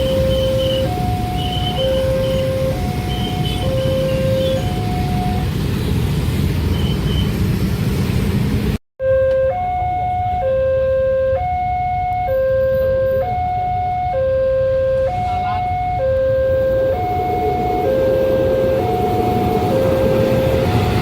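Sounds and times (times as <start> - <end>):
two-tone level crossing alarm: 0.0 - 5.5, 9.0 - 21.0
loud low rumble: 16.6 - 21.0.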